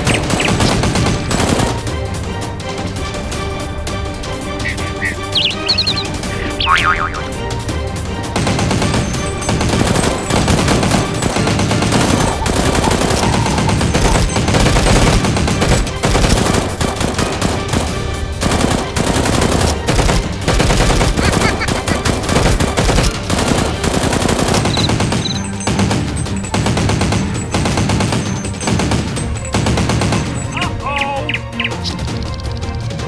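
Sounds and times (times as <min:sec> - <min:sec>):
rapid automatic gunfire: 0:00.0 - 0:02.0, 0:08.4 - 0:30.5
background music: 0:00.0 - 0:33.0.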